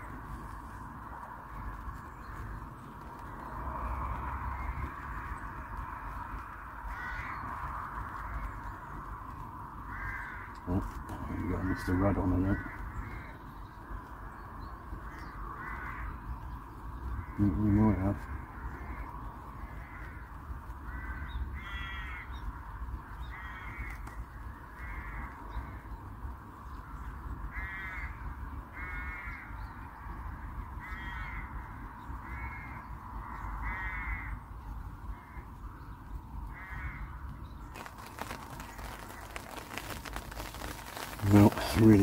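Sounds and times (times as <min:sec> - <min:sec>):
rain drumming on an umbrella: 0:00.0 - 0:28.1, 0:36.4 - 0:42.0
bird calling: 0:36.5 - 0:42.0.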